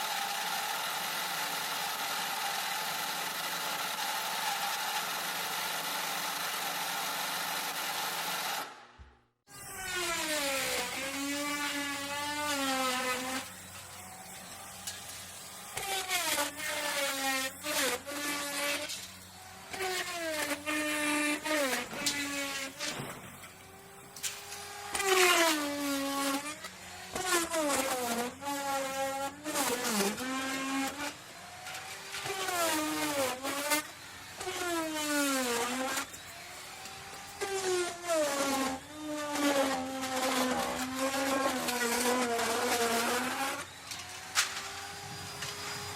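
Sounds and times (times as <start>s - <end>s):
power tool motor whining: 9.5s - 45.9s.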